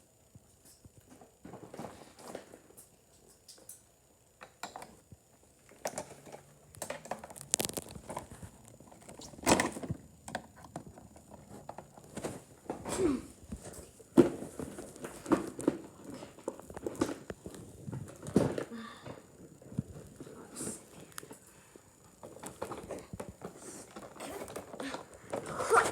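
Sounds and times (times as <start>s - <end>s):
packaging rustling: 6.9s - 9.9s.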